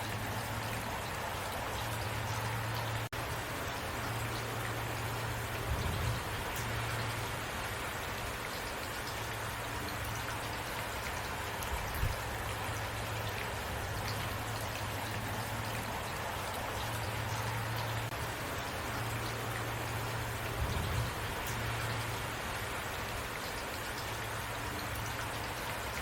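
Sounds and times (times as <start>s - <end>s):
low steady rumble: 0.0s - 8.2s, 11.7s - 22.7s
heavy rain falling: 0.0s - 26.0s.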